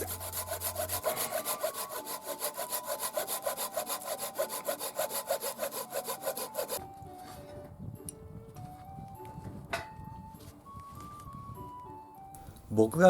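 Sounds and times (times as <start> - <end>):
hand saw cutting wood: 0.0 - 6.8.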